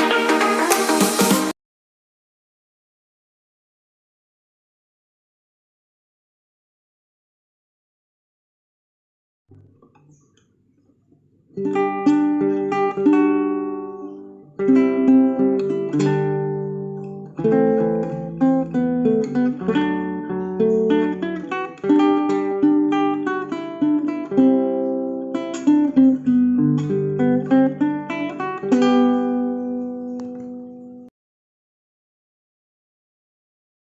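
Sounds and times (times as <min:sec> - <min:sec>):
acoustic guitar chords: 0:11.6 - 0:31.1.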